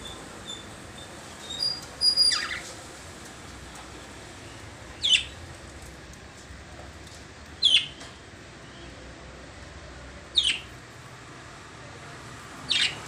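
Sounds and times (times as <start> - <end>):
lovebirds shrill calls: 1.4 - 2.7, 5.0 - 5.4, 7.6 - 8.0, 10.3 - 10.7, 12.7 - 13.0.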